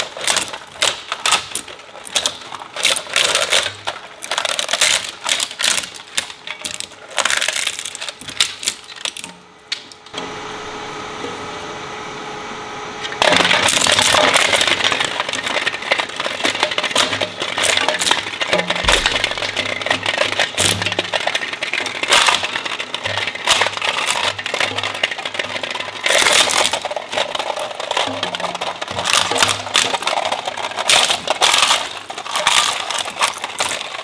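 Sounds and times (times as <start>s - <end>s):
shredder cracking plastic: 0.0s - 10.2s, 13.1s - 34.0s
shredder motor humming: 10.1s - 29.9s
dense grinding: 13.2s - 34.0s.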